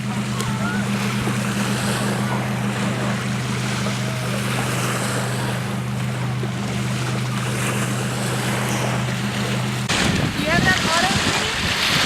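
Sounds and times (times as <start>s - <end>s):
steady low hum: 0.0s - 11.9s
waves washing on beach: 0.0s - 12.0s
wind on microphone: 9.8s - 12.0s.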